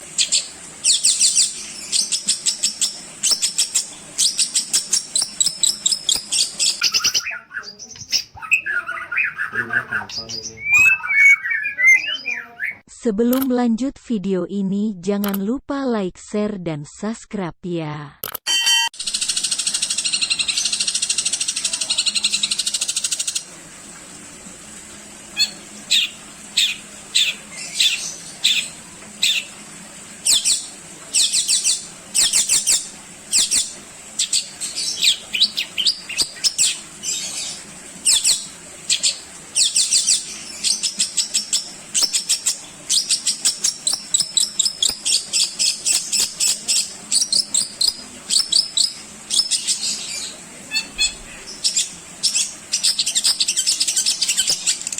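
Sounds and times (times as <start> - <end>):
shrike singing: 8.4 - 12.8.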